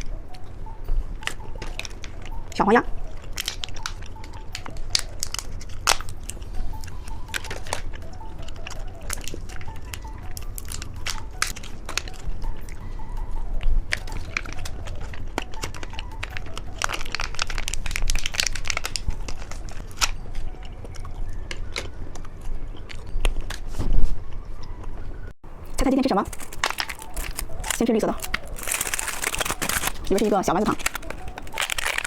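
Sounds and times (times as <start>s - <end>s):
crunching candy bites: 3.2s - 12.3s, 13.9s - 23.6s, 25.6s - 32.0s
wrapper crinkling: 13.9s - 20.2s, 25.5s - 32.0s.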